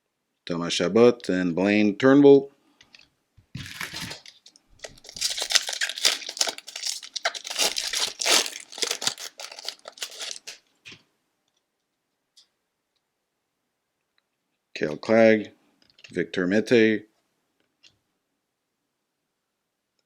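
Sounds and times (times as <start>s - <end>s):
card pack wrapper tearing and crinkling: 3.6s - 10.6s.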